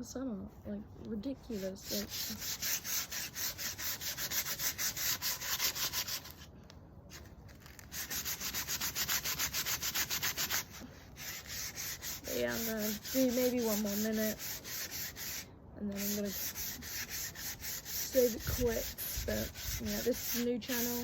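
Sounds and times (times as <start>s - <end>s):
sandpaper rubbing on wood: 1.5s - 6.5s, 7.1s - 21.0s.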